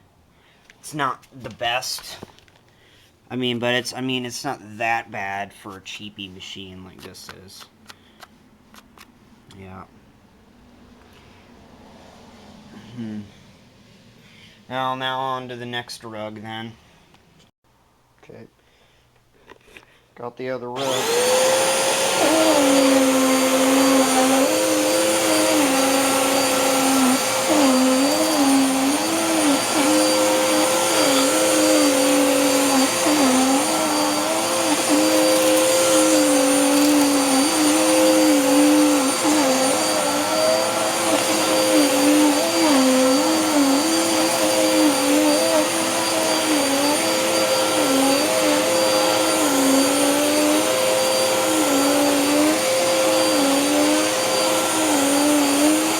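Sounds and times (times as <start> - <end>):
upright vacuum cleaner running: 20.8 - 55.9.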